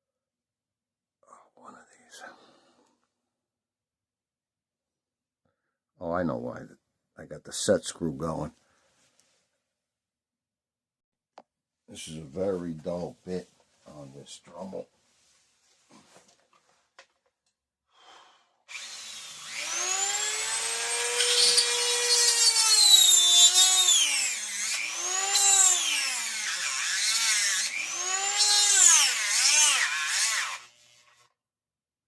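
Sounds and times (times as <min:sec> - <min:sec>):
rotary tool whining: 0:18.7 - 0:31.3.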